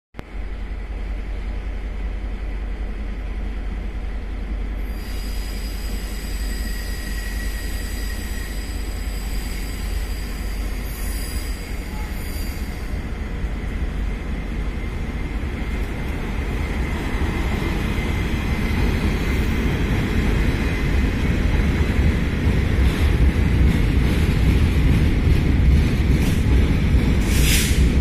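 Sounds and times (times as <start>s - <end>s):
train low rumble: 0.2s - 28.0s
high thin wheel squeal: 5.0s - 13.0s.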